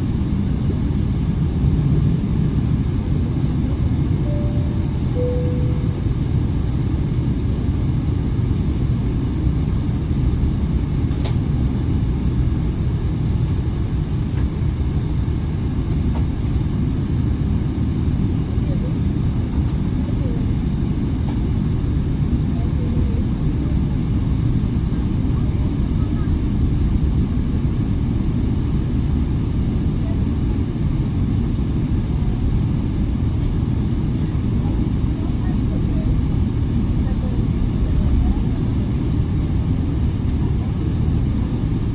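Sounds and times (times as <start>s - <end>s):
airliner cabin rumble: 0.0s - 41.9s
cabin chime note: 4.2s - 6.2s.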